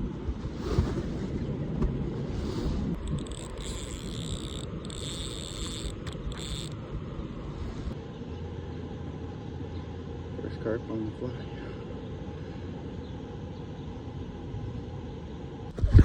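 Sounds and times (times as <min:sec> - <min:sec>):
wind buffeting microphone: 0:00.0 - 0:08.0, 0:15.7 - 0:16.0.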